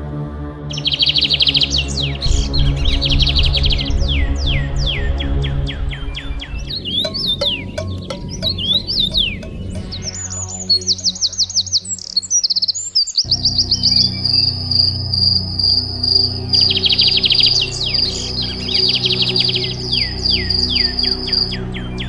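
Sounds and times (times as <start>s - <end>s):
ambient music with low tones: 0.0s - 22.0s
rapid bird chirps: 0.7s - 22.0s
high insect-like trill: 13.3s - 21.5s.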